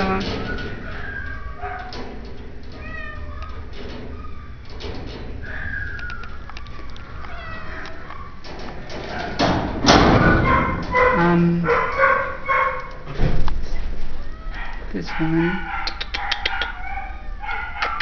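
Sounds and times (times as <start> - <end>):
cats meowing: 0.0 - 2.0, 2.7 - 8.5, 14.1 - 14.9
rustling noise: 0.0 - 14.9.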